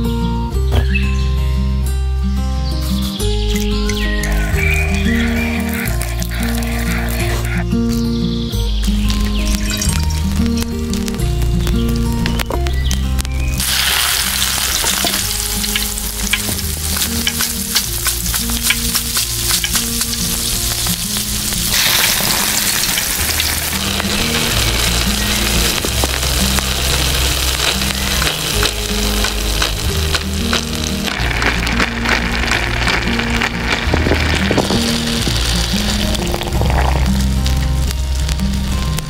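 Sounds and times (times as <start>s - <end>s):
food sizzling in hot oil: 3.4s - 7.6s, 12.9s - 39.0s.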